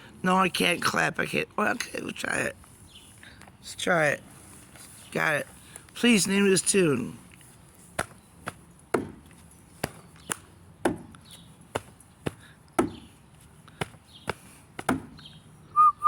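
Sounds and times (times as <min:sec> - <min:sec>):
hands clapping and slapping: 0:09.8 - 0:10.5.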